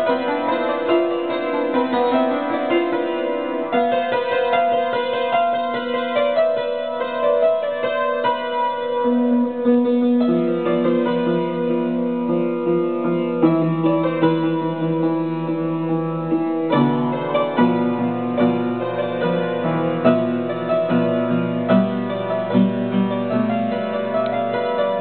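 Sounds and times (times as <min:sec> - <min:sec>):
solo piano chords: 0:00.0 - 0:25.0.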